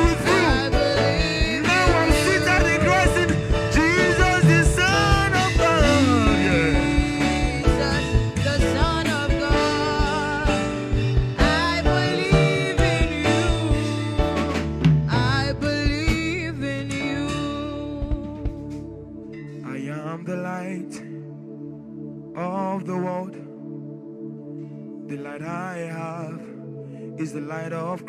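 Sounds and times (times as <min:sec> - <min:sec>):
drum hits: 0:00.0 - 0:18.9
gospel worship band music: 0:00.0 - 0:28.0.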